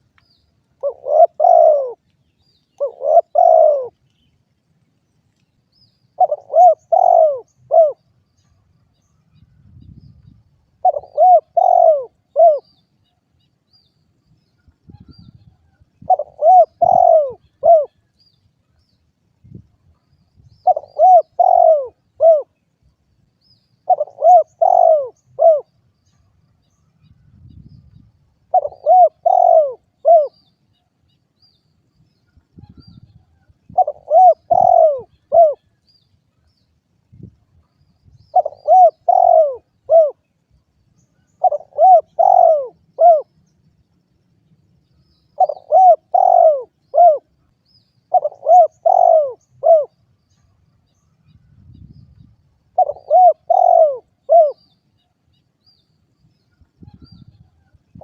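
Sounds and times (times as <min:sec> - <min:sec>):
dove cooing: 0:00.8 - 0:02.0, 0:02.8 - 0:04.0, 0:06.2 - 0:08.0, 0:10.8 - 0:12.7, 0:16.0 - 0:18.0, 0:20.6 - 0:22.6, 0:23.8 - 0:25.7, 0:28.5 - 0:30.4, 0:33.7 - 0:35.8, 0:38.3 - 0:40.3, 0:41.3 - 0:43.3, 0:45.4 - 0:47.3, 0:48.1 - 0:50.0, 0:52.7 - 0:54.8.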